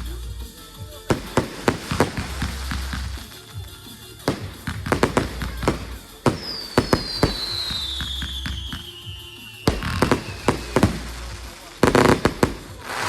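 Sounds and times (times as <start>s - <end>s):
music playing: 0.0s - 13.0s
fireworks banging and cracking: 0.9s - 13.0s
firework whistle falling in pitch: 6.5s - 11.5s.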